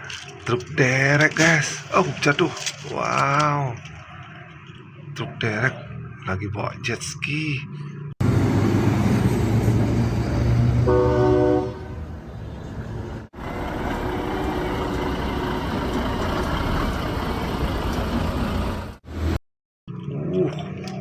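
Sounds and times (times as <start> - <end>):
running vehicle noise: 7.9 - 19.4
heavy truck engine rumbling: 8.2 - 19.4
short horn blast: 10.8 - 12.2, 13.4 - 16.5.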